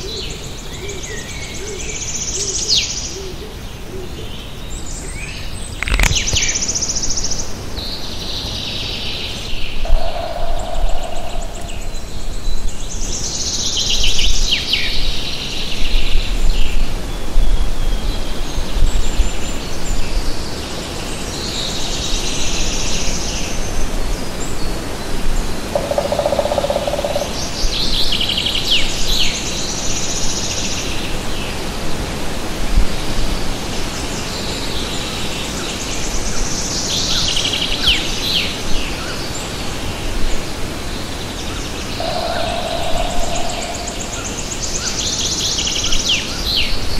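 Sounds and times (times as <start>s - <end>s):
songbird singing: 0.0s - 31.6s, 33.0s - 46.9s
bird call: 9.8s - 12.4s, 25.7s - 27.5s, 41.9s - 46.3s.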